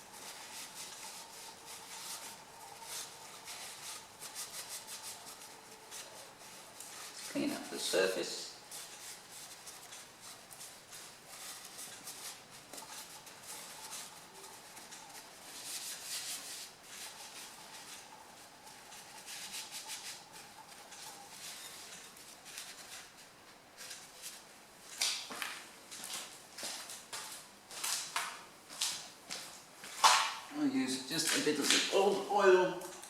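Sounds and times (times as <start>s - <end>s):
cloth rag rubbing: 0.0s - 24.5s.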